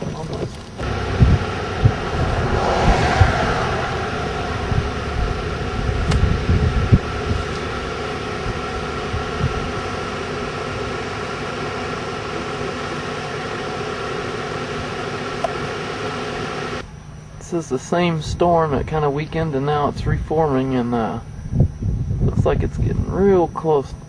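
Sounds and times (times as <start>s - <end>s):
vehicle engine humming: 0.0s - 17.3s
ventilation fan: 0.7s - 10.5s, 17.1s - 24.0s
low thumps: 0.8s - 7.6s.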